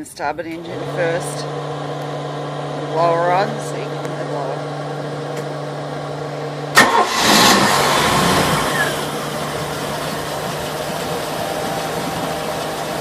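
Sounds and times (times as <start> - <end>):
engine-bay blower hum: 0.0 - 13.0
boat engine idling: 0.5 - 13.0.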